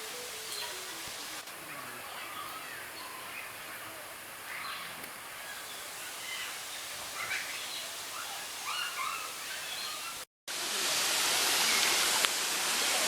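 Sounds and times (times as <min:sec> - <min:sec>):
birds chirping: 0:00.0 - 0:10.3
soft forest hiss: 0:00.0 - 0:13.0
waterfall rushing: 0:00.0 - 0:13.0.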